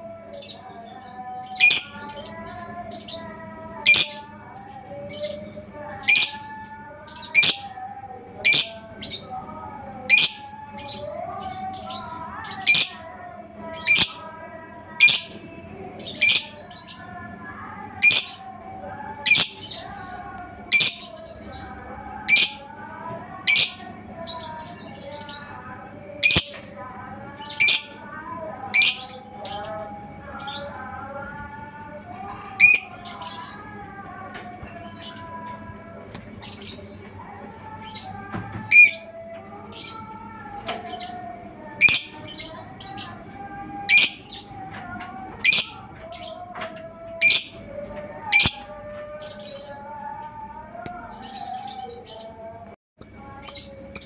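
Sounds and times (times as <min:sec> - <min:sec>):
lovebird wavering chatter: 0:00.0 - 0:54.0
lovebird sharp high chirps: 0:26.2 - 0:26.5.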